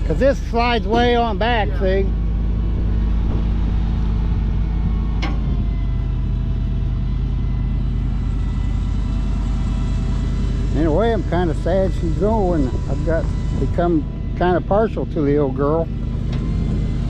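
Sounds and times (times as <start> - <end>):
hydraulic whine: 0.0 - 17.0
truck engine running: 0.0 - 17.0.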